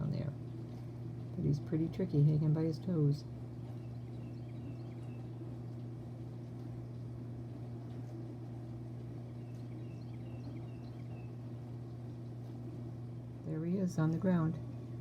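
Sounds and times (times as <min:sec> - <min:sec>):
steady low hum: 0:00.0 - 0:15.0
faint bird chirps: 0:03.7 - 0:05.4, 0:09.2 - 0:11.5.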